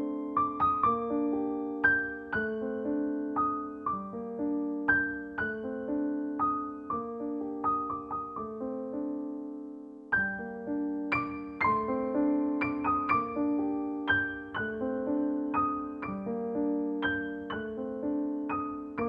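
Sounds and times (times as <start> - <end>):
gentle solo piano: 0.0 - 19.0.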